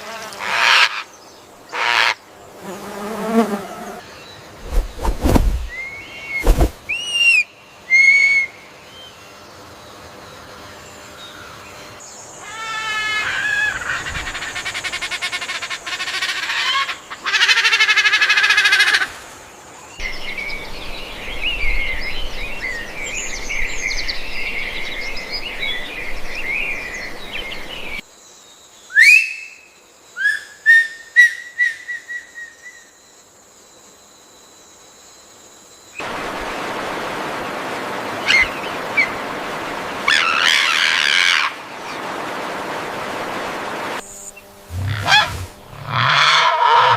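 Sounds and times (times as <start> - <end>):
sharp rising whistled bird calls: 4.6 - 8.6, 44.1 - 46.9
birds twittering chorus: 19.5 - 30.5, 35.7 - 46.9
birds chirping and trilling: 36.5 - 46.9.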